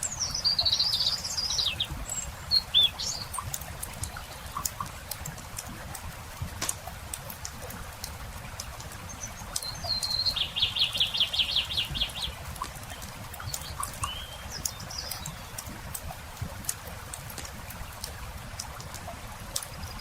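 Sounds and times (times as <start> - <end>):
campfire crackling and popping: 1.4 - 20.0
songbird trilling: 9.6 - 12.4, 13.6 - 15.5.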